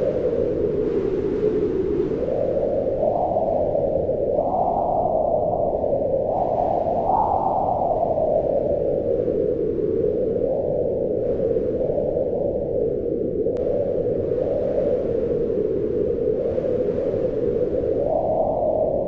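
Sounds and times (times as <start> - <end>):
howling wind: 0.0 - 19.0.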